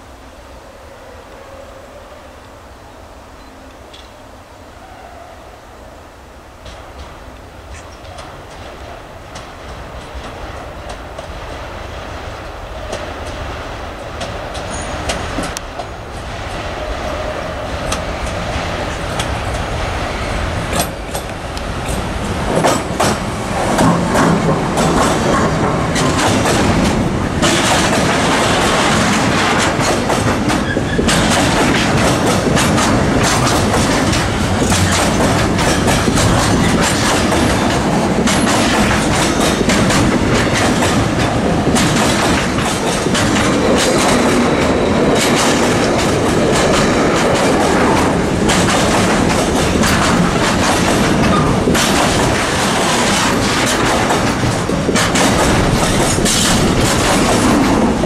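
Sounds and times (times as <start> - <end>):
electric locomotive passing: 0.0 - 58.0
clickety-clack of wheels: 20.7 - 58.0.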